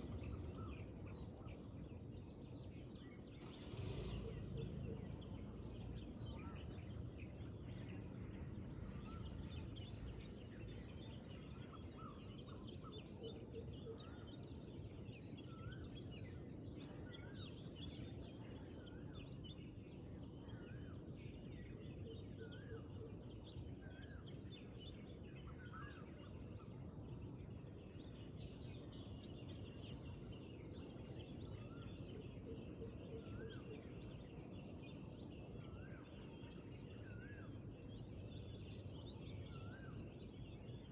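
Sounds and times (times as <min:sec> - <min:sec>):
low background rumble: 0:00.0 - 0:10.9
whistled birdsong: 0:00.0 - 0:40.9.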